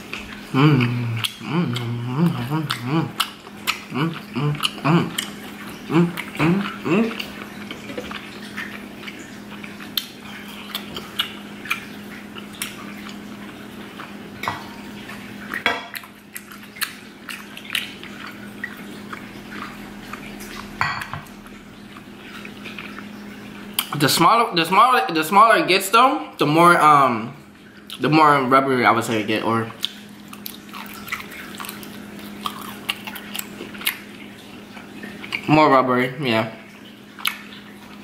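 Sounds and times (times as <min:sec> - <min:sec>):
wet chewing and lip smacks: 0:00.0 - 0:14.4, 0:15.4 - 0:20.8, 0:29.7 - 0:35.5, 0:36.9 - 0:38.0.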